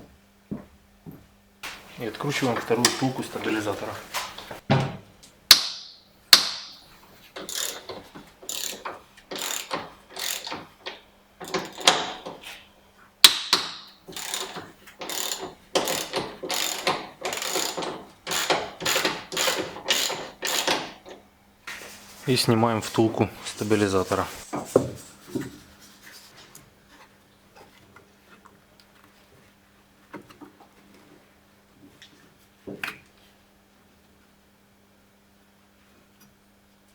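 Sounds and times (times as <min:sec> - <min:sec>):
ratchet wrench clicking: 0:07.4 - 0:12.4, 0:13.2 - 0:21.1.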